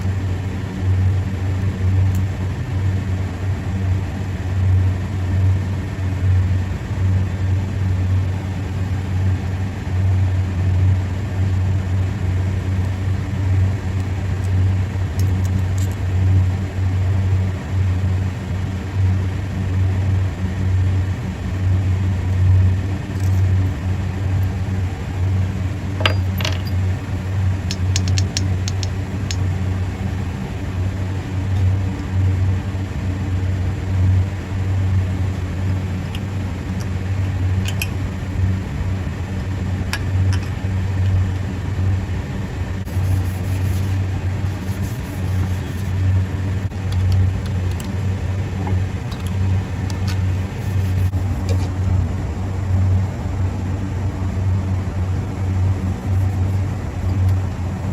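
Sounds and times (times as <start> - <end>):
machine deep hum: 0.0 - 57.9
light clicks and ticks: 27.7 - 29.4.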